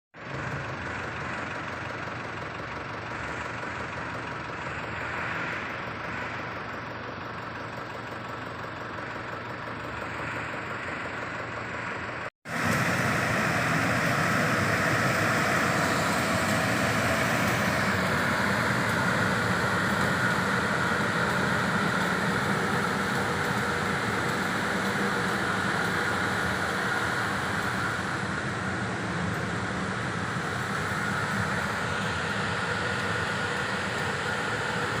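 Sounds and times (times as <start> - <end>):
spraying machine engine running: 12.5 - 35.0.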